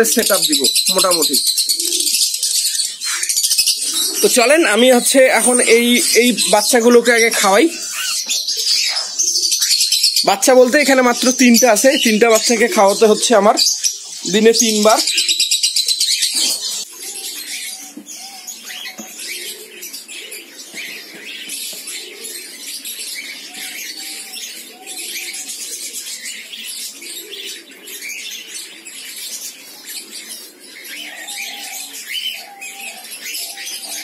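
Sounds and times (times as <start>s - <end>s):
bird chicks begging: 0.0s - 34.0s.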